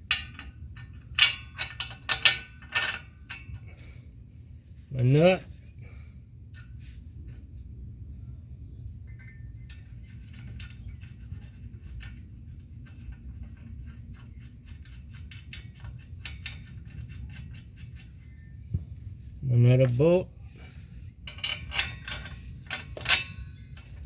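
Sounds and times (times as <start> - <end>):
insect drone: 0.0 - 24.0
metallic clicks of nut on bolt: 21.3 - 24.0.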